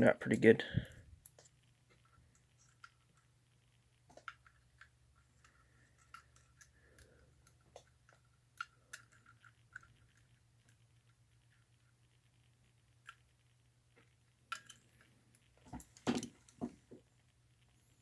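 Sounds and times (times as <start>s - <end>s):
low steady hum: 0.0s - 18.0s
small metal parts clicking: 4.1s - 12.0s, 14.0s - 16.6s.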